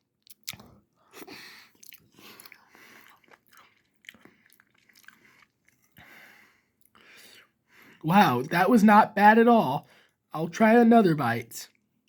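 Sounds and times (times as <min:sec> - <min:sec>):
faint wet chewing: 0:00.2 - 0:07.2.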